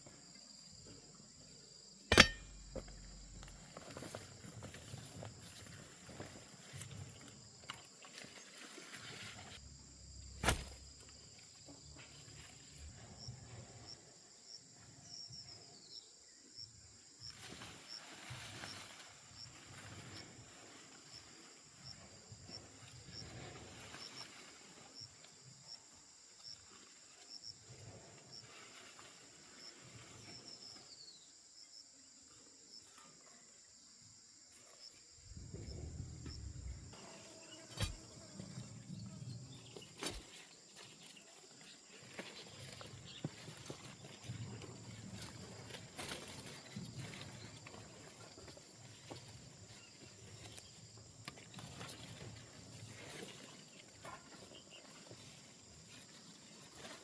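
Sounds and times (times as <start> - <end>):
insect chirps: 0.0 - 57.0
insect drone: 0.0 - 57.0
sharp knock: 2.1 - 2.8.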